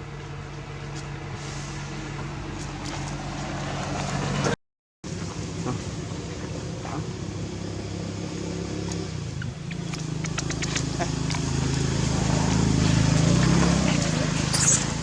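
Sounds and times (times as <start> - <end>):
sharp clicks: 9.7 - 11.4.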